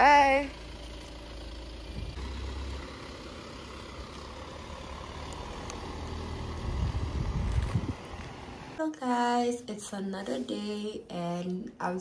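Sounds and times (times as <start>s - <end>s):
car engine idling: 0.0s - 8.8s
car pulling away: 0.0s - 8.8s.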